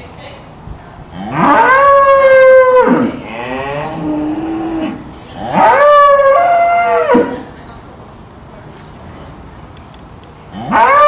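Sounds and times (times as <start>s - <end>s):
cattle mooing: 1.2s - 7.4s, 10.6s - 11.0s.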